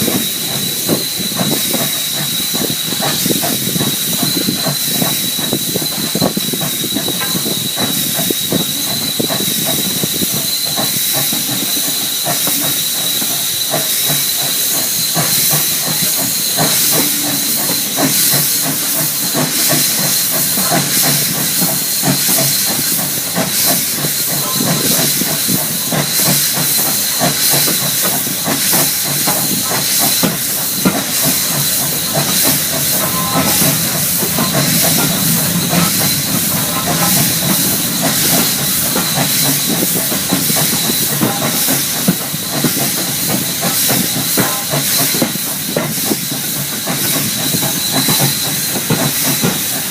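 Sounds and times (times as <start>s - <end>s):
steam hissing: 0.0s - 49.9s
train knocking and rattling: 0.0s - 49.9s
high steady tone: 16.0s - 21.5s, 30.9s - 40.5s.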